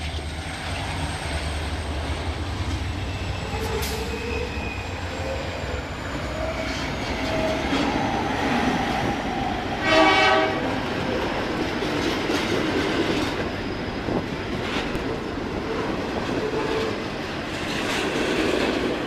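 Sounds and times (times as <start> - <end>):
train rolling on rails: 0.0 - 19.0
train horn blast: 9.8 - 10.8.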